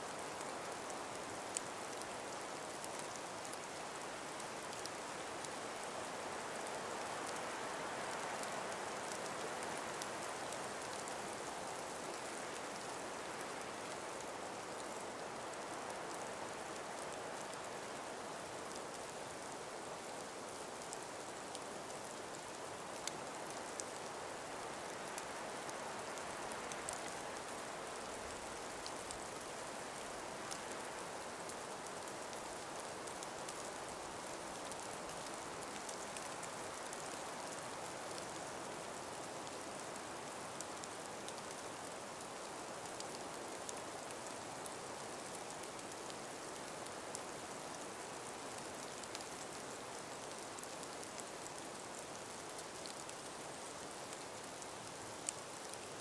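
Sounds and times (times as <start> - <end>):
breeze through forest: 0.0 - 56.0
faint ticks: 20.8 - 56.0.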